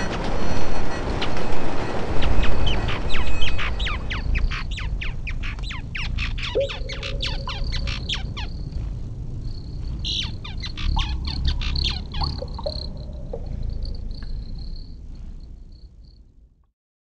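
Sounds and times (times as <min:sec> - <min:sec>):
birds chirping: 0:02.2 - 0:08.8, 0:09.6 - 0:15.0
low rumble: 0:04.3 - 0:15.8
thin steady high whine: 0:06.4 - 0:10.0.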